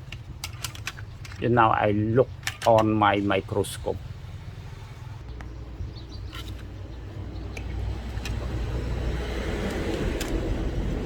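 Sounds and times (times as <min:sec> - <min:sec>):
traffic rumble: 0:00.0 - 0:11.0
vehicle passing: 0:03.8 - 0:11.0.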